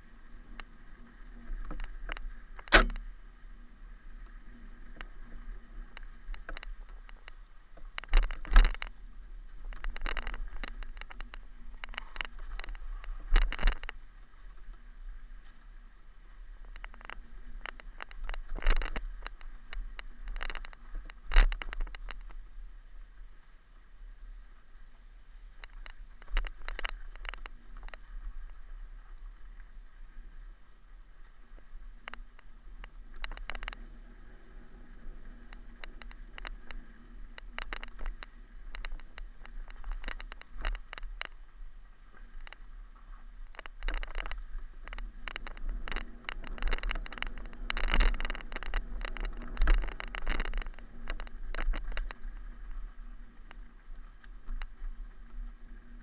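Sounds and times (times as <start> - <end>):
wind rumble on microphone: 0.0 - 56.0
clicks rattles and crunches: 5.9 - 9.0, 9.6 - 14.0, 16.7 - 22.3, 25.6 - 28.1, 32.0 - 33.8, 37.4 - 41.4, 43.4 - 52.8.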